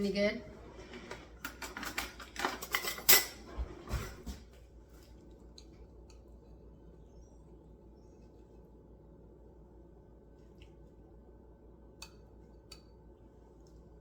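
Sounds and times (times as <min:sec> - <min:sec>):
cutlery clinking against a dish: 0:01.4 - 0:03.4.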